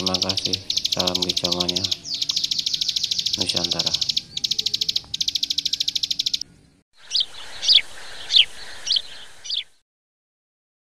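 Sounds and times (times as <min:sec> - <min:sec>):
bird clicking notes: 0:00.0 - 0:06.4
bird chirps: 0:00.0 - 0:09.8.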